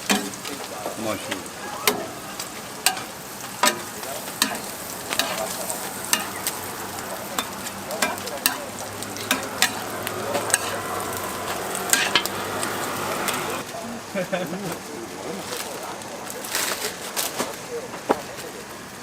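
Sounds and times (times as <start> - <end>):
food sizzling on a griddle: 0.0 - 19.0
metal spatula scraping hot plate: 1.3 - 13.6.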